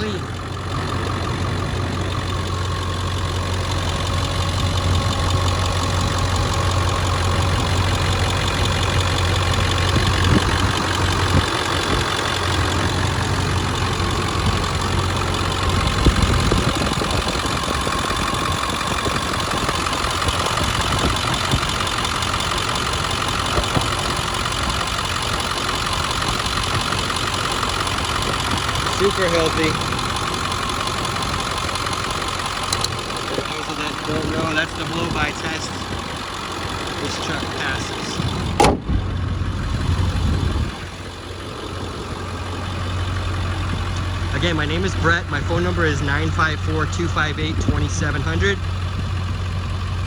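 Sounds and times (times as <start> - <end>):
diesel engine idling: 0.0 - 50.0
short knocks: 38.5 - 39.0.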